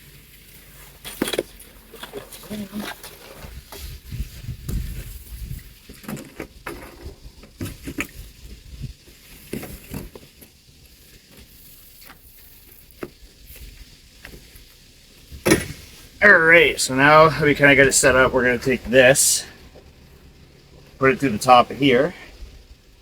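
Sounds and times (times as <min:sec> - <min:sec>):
sailboat rigging rustling and knocking: 0:00.0 - 0:22.2
wind rumble on microphone: 0:03.4 - 0:05.9, 0:07.0 - 0:09.1.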